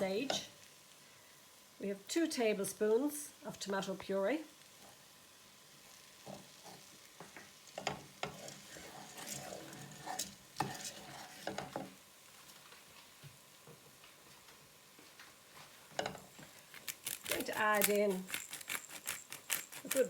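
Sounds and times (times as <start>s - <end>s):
faint frying sizzle: 0.0s - 20.0s
spoon scraping a pot: 6.2s - 11.9s, 16.9s - 20.0s.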